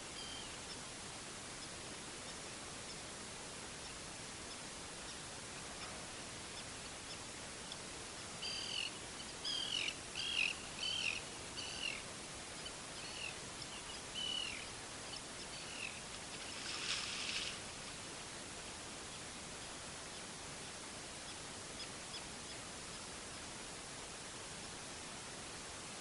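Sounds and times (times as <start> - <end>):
small bird chirping: 8.4 - 12.0, 12.6 - 16.7.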